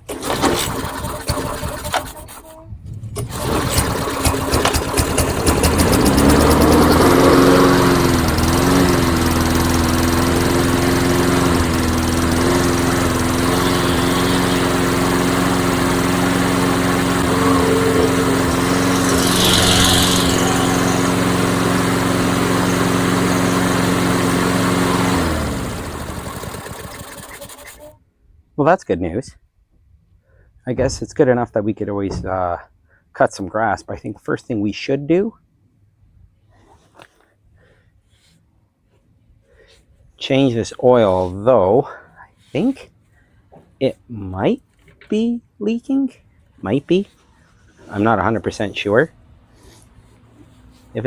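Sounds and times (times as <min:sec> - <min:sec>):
lawn mower engine running: 0:00.0 - 0:02.6, 0:03.2 - 0:27.9.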